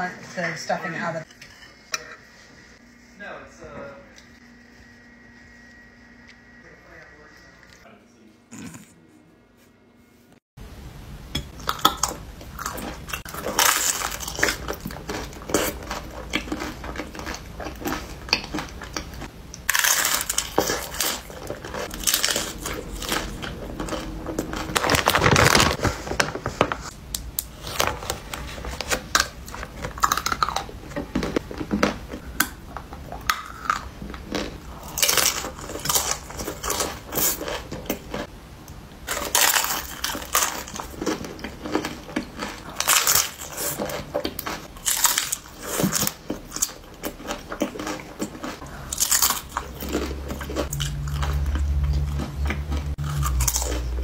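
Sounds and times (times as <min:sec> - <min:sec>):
crunchy biting and chewing: 0:11.6 - 0:25.8, 0:27.4 - 0:38.3, 0:39.0 - 0:54.0
snack bag rustling: 0:19.7 - 0:32.2.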